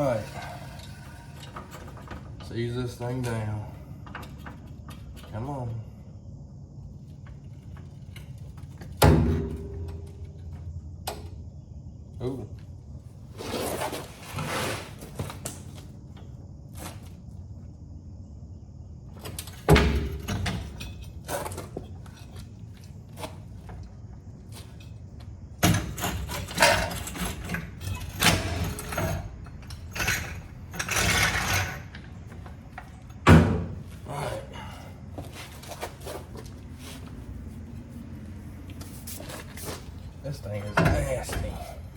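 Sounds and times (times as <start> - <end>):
knocks and clatter of tools: 25.6 - 33.9.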